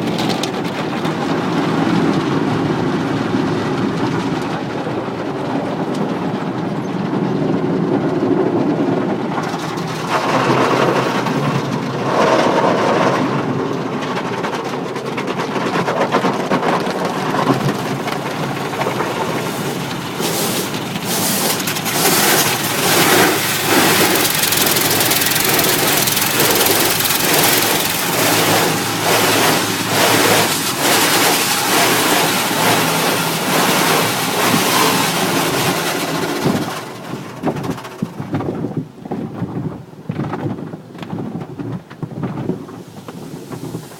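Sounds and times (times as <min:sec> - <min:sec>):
car wash machinery running: 0:00.0 - 0:39.0, 0:42.5 - 0:43.9
water spraying on car: 0:16.1 - 0:37.2.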